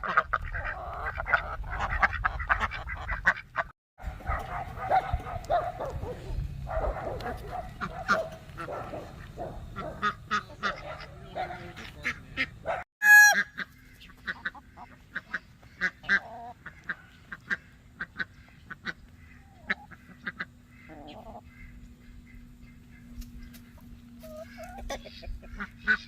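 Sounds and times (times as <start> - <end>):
geese honking: 6.8 - 26.0.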